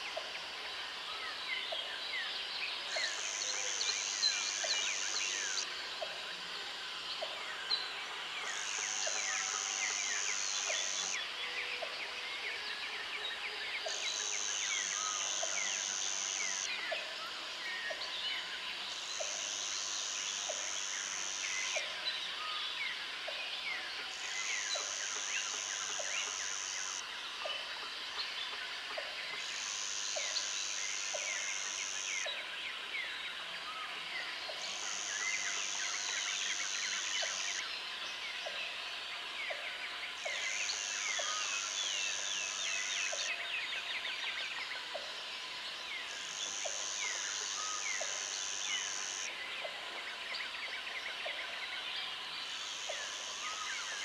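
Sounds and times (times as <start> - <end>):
high insect buzz: 14.1 - 16.7, 24.2 - 27.0, 29.4 - 32.2, 46.2 - 49.3.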